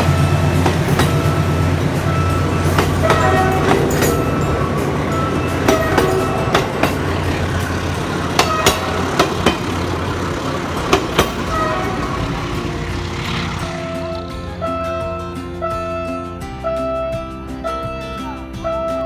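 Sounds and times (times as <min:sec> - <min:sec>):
train wheels clacking over rail joints: 0:00.0 - 0:14.4
low train drone: 0:00.0 - 0:19.0.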